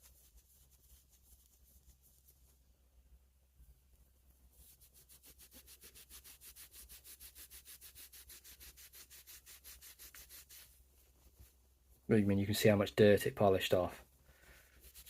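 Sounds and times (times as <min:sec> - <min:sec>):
cloth rubbing on metal: 0:00.0 - 0:02.6, 0:04.4 - 0:11.7, 0:14.4 - 0:15.0.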